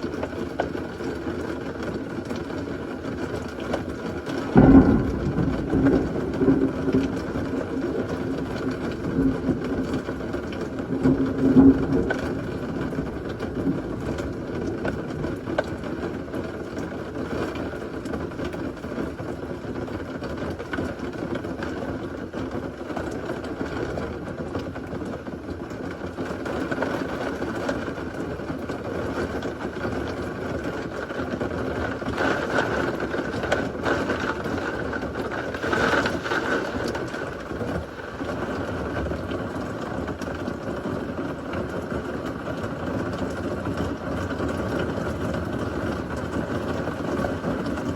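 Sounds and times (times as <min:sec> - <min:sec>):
heavy rain falling: 0:00.0 - 0:47.9
low rumble: 0:04.6 - 0:09.0.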